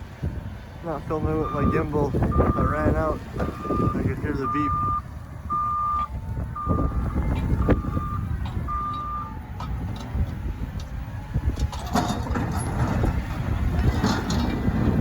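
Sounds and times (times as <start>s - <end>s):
loader diesel engine rumble: 0.0s - 15.0s
reversing alarm beeping: 1.4s - 9.4s.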